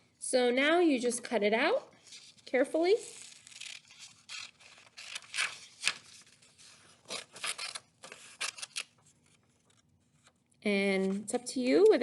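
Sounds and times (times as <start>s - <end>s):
scissors snipping paper: 3.2s - 6.0s, 7.1s - 8.9s.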